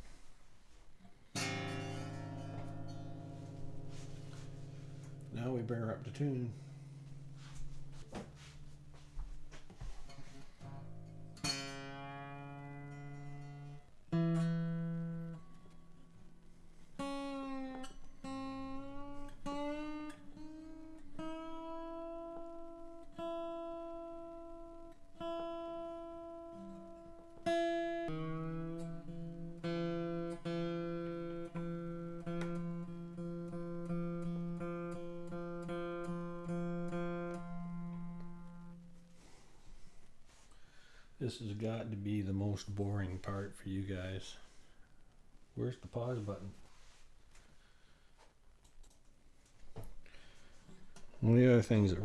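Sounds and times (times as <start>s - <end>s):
acoustic guitar strings plucked: 0.0s - 40.5s
guitar tuning pegs turning: 1.4s - 16.2s.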